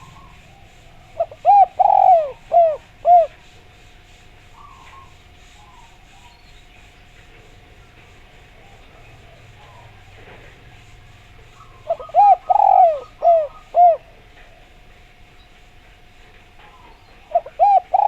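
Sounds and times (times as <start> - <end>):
dove cooing: 0.0 - 3.6, 4.6 - 6.0, 8.6 - 14.8, 16.7 - 18.0
faint steady hum: 0.0 - 18.0.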